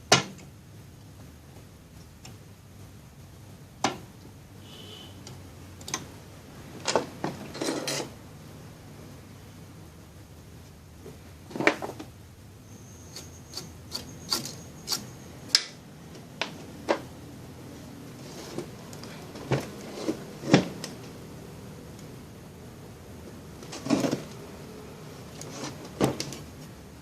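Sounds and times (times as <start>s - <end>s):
faint high steady tone: 4.6s - 5.3s, 12.4s - 15.5s.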